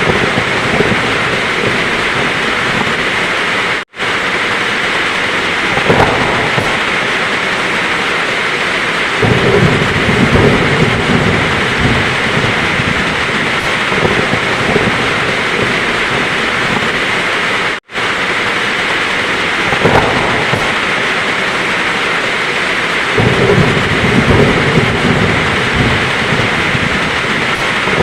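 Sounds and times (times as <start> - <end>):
low rumble of thunder: 0.0 - 3.3, 5.1 - 17.4, 19.1 - 28.0
heavy rain falling: 0.0 - 28.0.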